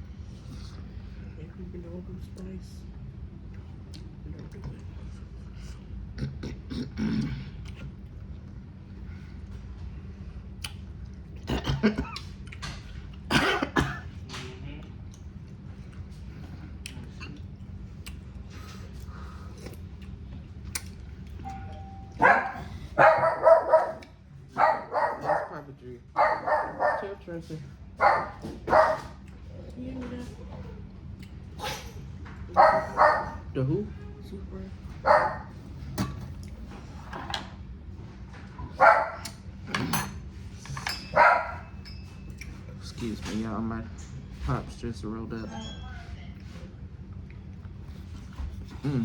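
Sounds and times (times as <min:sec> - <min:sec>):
dog barking: 0:22.1 - 0:27.2, 0:28.0 - 0:29.2, 0:32.5 - 0:33.5, 0:35.0 - 0:35.6, 0:38.7 - 0:39.3, 0:41.1 - 0:41.7.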